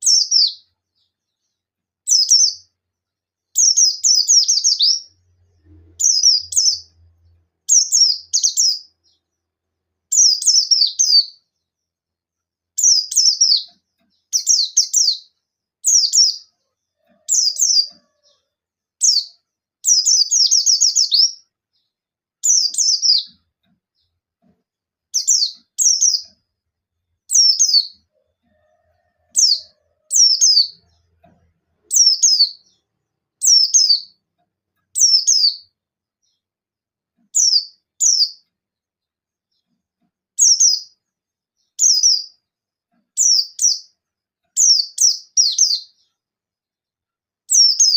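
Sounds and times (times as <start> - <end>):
bird singing rapid chirps: 0.0 - 2.8, 3.5 - 9.5, 10.1 - 11.7, 12.8 - 18.4, 19.0 - 24.2, 25.2 - 26.4, 27.0 - 28.1, 29.3 - 31.2, 31.9 - 34.2, 34.9 - 36.4, 37.3 - 38.4, 40.4 - 41.0, 41.6 - 42.4, 43.2 - 43.9, 44.6 - 46.2, 47.5 - 47.9.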